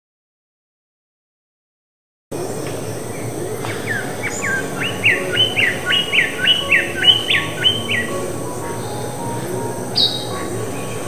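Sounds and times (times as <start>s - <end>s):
background hiss: 2.4s - 11.0s
bird whistling upward notes: 3.0s - 10.5s.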